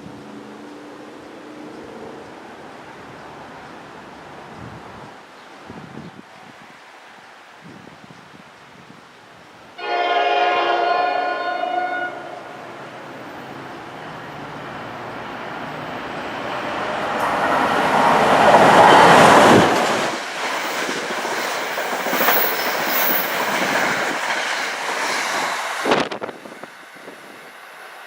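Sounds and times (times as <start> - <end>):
electric train passing: 0.0 - 5.1, 9.8 - 28.0
train wheel squeal: 20.5 - 25.5.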